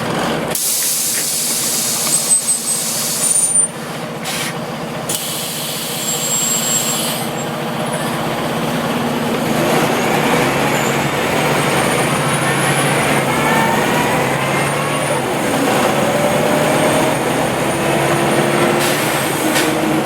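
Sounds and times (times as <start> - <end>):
bus engine pulling away: 0.0 - 20.0
compressed air hissing: 0.6 - 3.4, 4.2 - 7.4.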